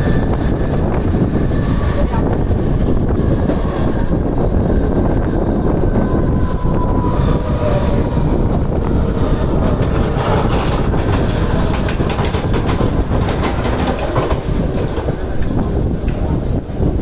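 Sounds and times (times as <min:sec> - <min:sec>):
train running rumble: 0:00.0 - 0:17.0
wheels clacking over rails: 0:06.9 - 0:17.0.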